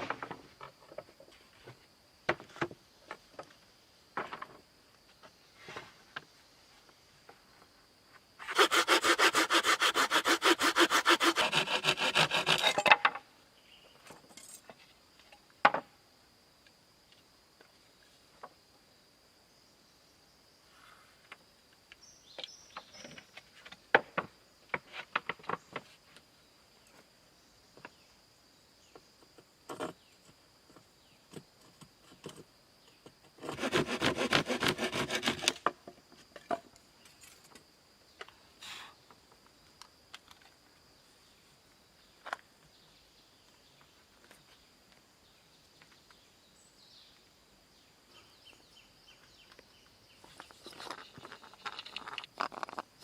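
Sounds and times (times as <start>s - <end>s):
rapid rasping strokes: 8.4s - 12.8s.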